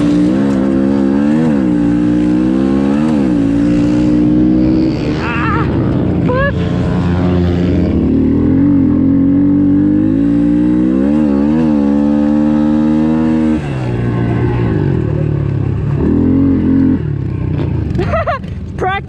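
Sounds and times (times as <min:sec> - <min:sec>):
small motorcycle engine revving: 0:00.0 - 0:18.2.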